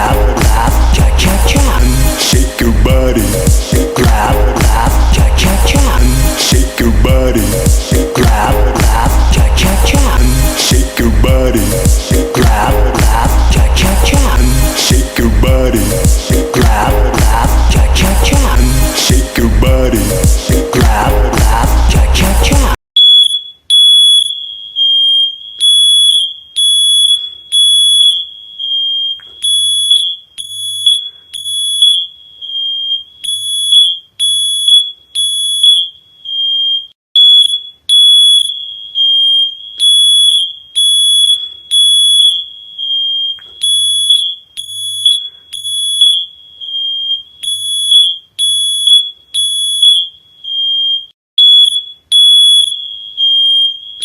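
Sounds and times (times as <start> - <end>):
smoke alarm beeping: 23.0 - 54.0.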